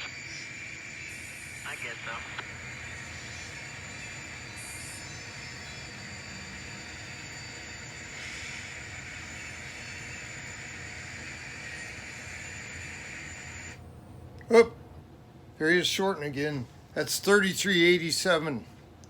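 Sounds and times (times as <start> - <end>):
model train diesel engine sound: 0.0 - 13.8.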